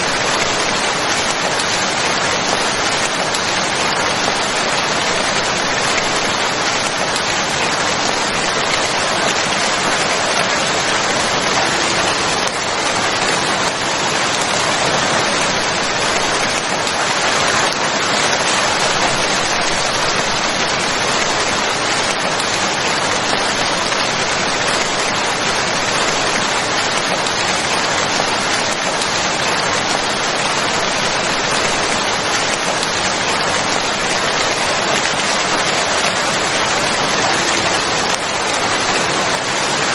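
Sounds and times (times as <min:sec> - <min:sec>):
steady dense rain: 0:00.0 - 0:39.9.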